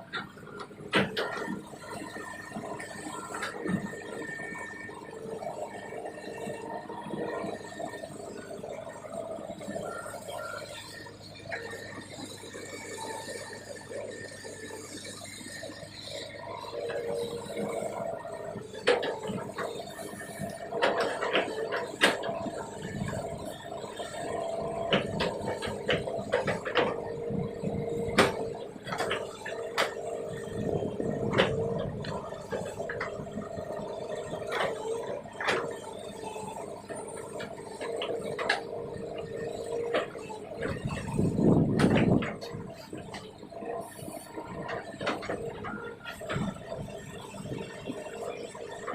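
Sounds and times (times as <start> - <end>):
excavator engine and hydraulics: 0.0 - 48.9
excavator bucket knocks and clanks: 20.9 - 27.2, 39.4 - 42.8.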